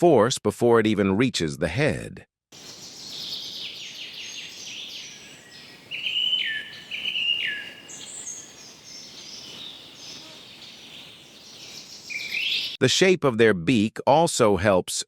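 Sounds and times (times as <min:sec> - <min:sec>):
soft outdoor hiss: 0:02.6 - 0:12.8
songbird singing: 0:02.6 - 0:12.8.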